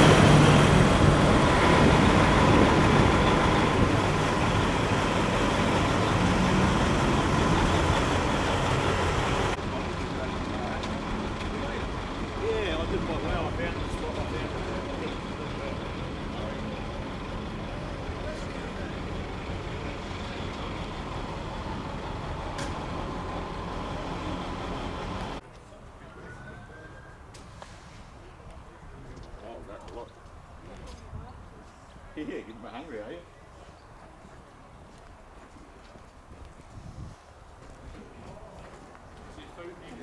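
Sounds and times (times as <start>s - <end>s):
vehicle engine and road noise: 0.0s - 25.6s.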